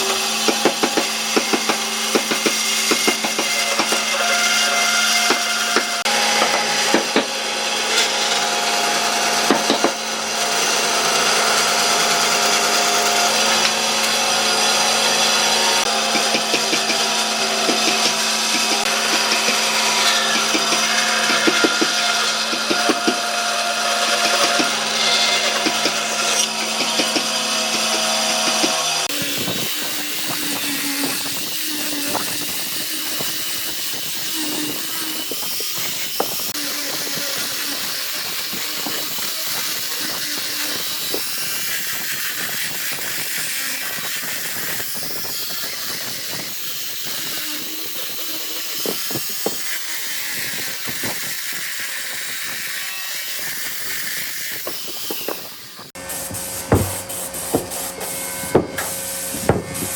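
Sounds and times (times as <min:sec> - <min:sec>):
power tool motor whine: 0:00.0 - 0:59.9
hissing grind on wood: 0:50.4 - 0:59.9.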